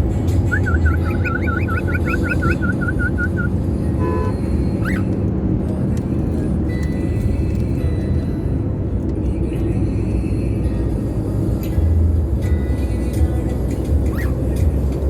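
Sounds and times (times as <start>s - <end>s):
cockatiel chirp: 0.5s - 3.5s
cockatiel whistling: 0.5s - 3.5s, 4.8s - 5.1s
horn-like tone: 4.0s - 5.0s.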